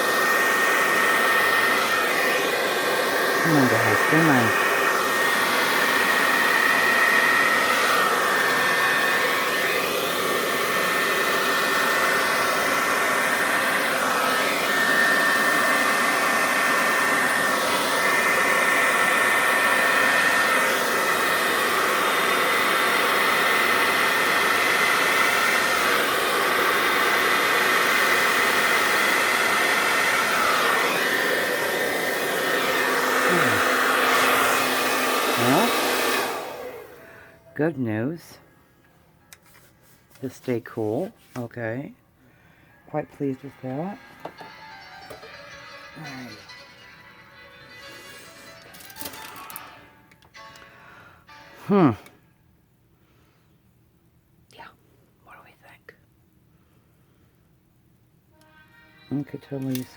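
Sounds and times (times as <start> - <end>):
hair dryer running: 0.0 - 37.4, 43.0 - 50.7, 58.4 - 59.9.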